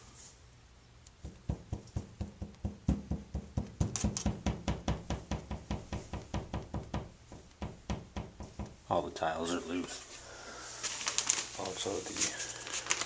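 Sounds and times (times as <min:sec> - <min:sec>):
rapid knocking on wall tiles: 0:01.2 - 0:08.8.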